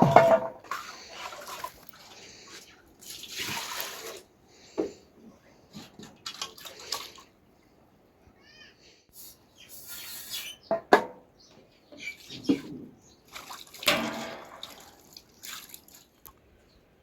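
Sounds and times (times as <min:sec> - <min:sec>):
sharp knocks: 0:00.0 - 0:00.6
water splashing and pouring: 0:00.0 - 0:04.3, 0:05.9 - 0:07.3, 0:12.2 - 0:16.4.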